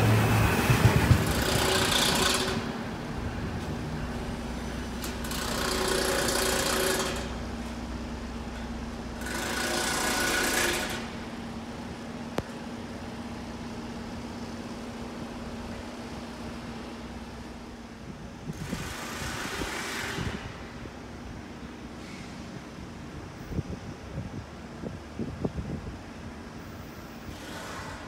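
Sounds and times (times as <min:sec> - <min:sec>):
train engine hum: 0:00.0 - 0:28.0
train rumble and rattle: 0:00.0 - 0:28.0.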